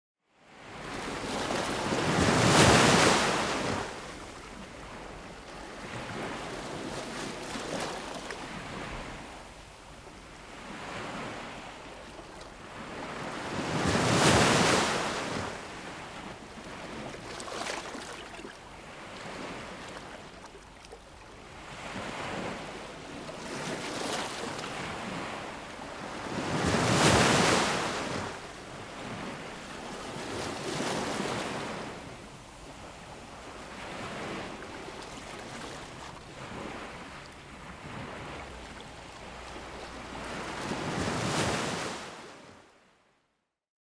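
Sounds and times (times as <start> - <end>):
surf washing: 21.7 - 42.4
ocean waves crashing: 26.0 - 28.4, 32.8 - 42.3.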